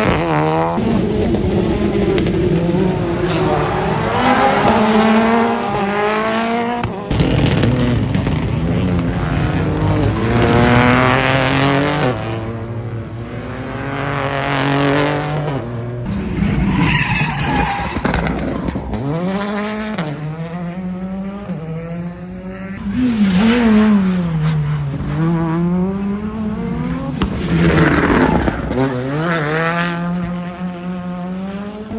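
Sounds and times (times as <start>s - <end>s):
rally car engine revving: 0.0s - 31.9s
tyre squeal: 16.1s - 18.7s.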